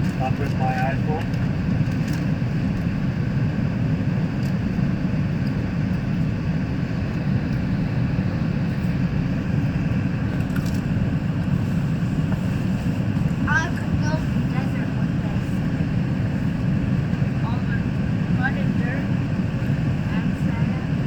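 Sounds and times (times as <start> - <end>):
train coach rumble: 0.0 - 21.0.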